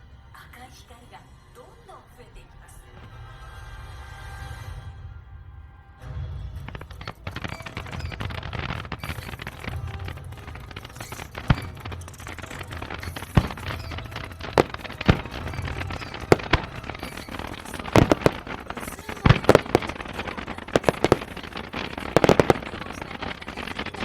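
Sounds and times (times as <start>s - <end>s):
fireworks bangs: 6.0s - 24.0s.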